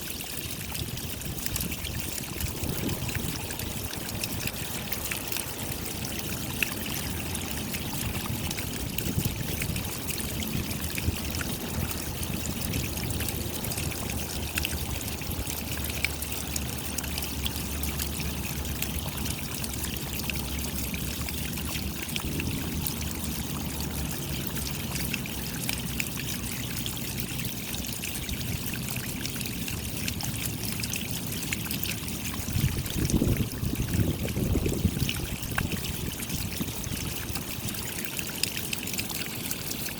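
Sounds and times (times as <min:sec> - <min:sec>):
raindrops ticking: 0:00.0 - 0:39.9
running water trickle: 0:00.0 - 0:39.9.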